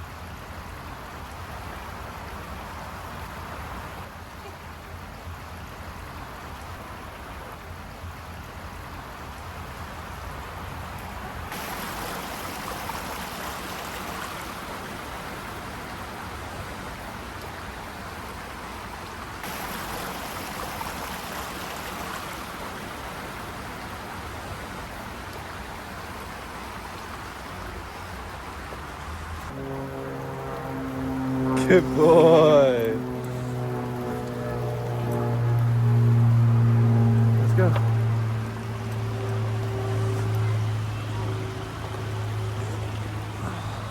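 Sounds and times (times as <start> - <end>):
creek water rushing over rocks: 0.0 - 43.9.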